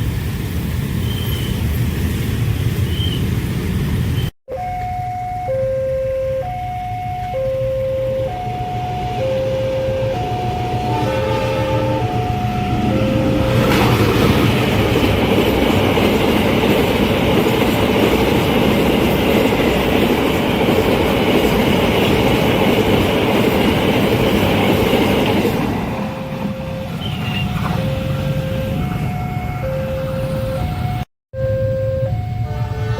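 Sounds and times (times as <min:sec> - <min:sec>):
crossing warning alarm: 0:04.2 - 0:32.9
train wheels clickety-clack: 0:13.5 - 0:27.8.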